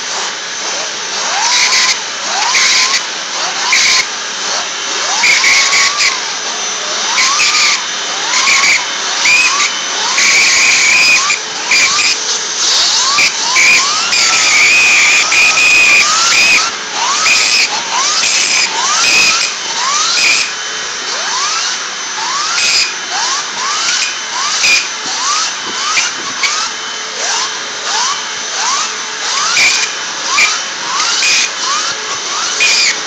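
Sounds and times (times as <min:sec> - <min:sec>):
short rising whistle: 0:08.4 - 0:20.5.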